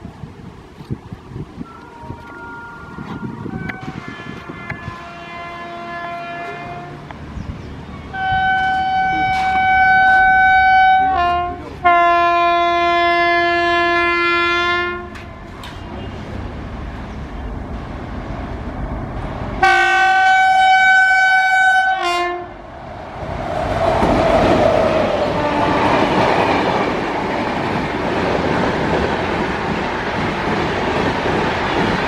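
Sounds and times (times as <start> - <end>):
train rushing past: 1.1 - 32.0
locomotive horn blast: 1.6 - 7.1, 8.1 - 16.2, 19.6 - 22.6, 25.3 - 26.3.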